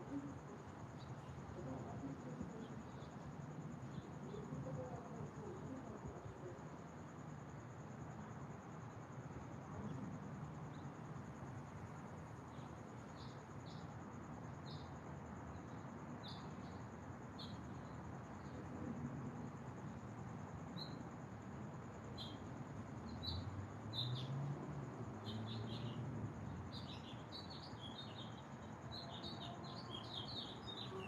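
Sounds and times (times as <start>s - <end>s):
low outdoor hiss: 0.0s - 31.0s
small birds chirping: 23.0s - 24.4s, 25.2s - 26.0s, 26.6s - 31.0s.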